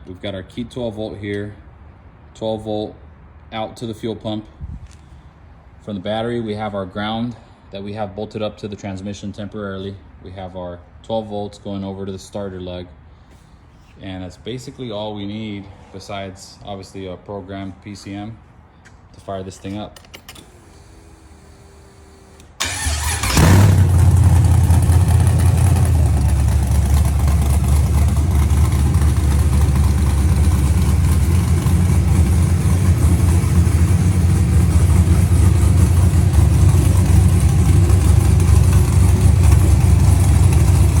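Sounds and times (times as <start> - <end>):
car engine starting and idling: 20.0 - 41.0
starter motor cranking: 20.2 - 26.3.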